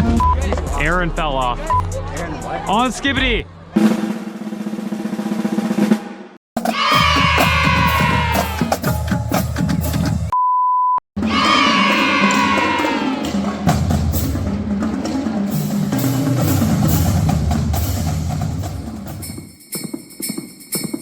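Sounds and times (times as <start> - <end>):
drum-heavy music: 0.0 - 10.4, 11.2 - 21.0
censor bleep: 10.3 - 11.0.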